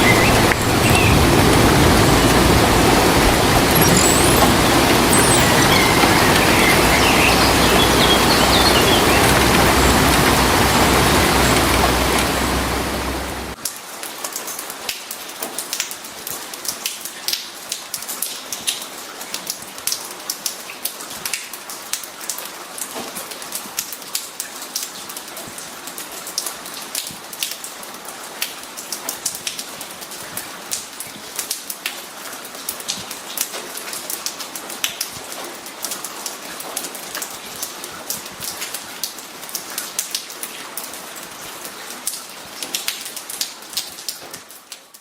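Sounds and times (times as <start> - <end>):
loud steady rushing noise: 0.0 - 13.6
rain drops pattering: 0.0 - 45.0.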